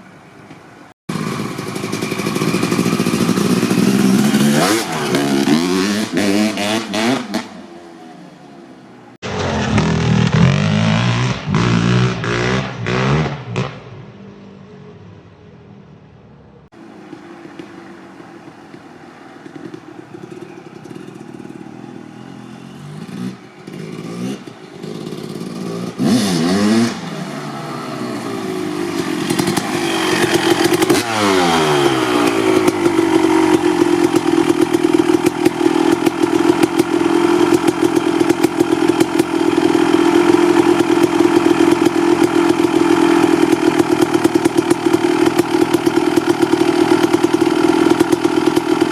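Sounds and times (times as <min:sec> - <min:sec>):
motocross engine revving and idling: 0:01.1 - 0:08.0, 0:09.2 - 0:13.8, 0:19.5 - 0:48.9.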